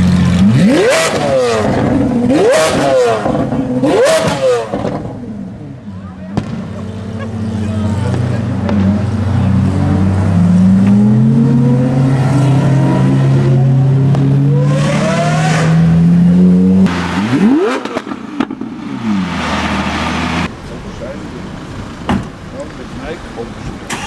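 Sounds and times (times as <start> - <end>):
engine revving: 0.0 - 5.3, 6.4 - 20.5
car engine accelerating hard: 0.0 - 20.5
exhaust crackles and pops: 16.9 - 20.5.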